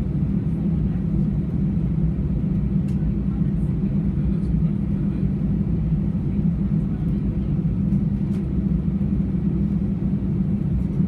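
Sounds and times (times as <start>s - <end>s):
aircraft cabin engine rumble: 0.0s - 11.0s.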